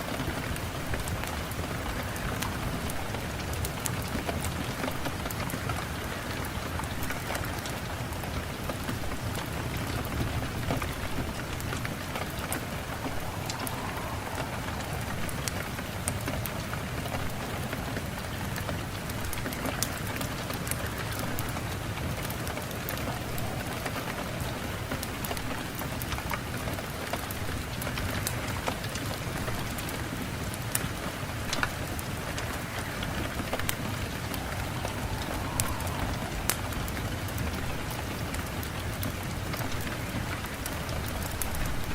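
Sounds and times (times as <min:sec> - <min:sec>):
rain hiss: 0:00.0 - 0:41.9
raindrops ticking on a surface: 0:00.0 - 0:41.9.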